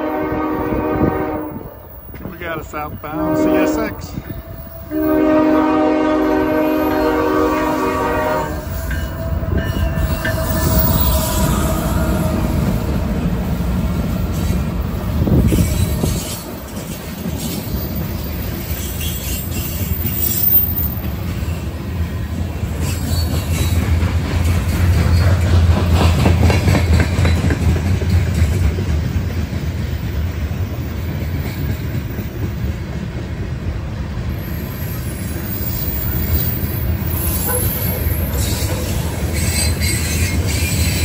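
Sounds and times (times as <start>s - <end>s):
train horn chord: 0.0s - 2.0s, 2.6s - 13.0s
diesel locomotive rumbling past: 0.0s - 41.0s.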